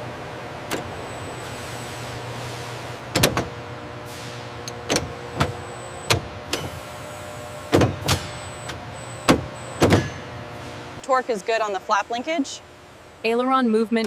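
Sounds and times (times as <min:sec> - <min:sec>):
machine hum: 0:00.0 - 0:14.0
mechanical clicks and clunks: 0:00.6 - 0:01.5, 0:03.1 - 0:03.6, 0:04.6 - 0:06.8, 0:07.7 - 0:10.2.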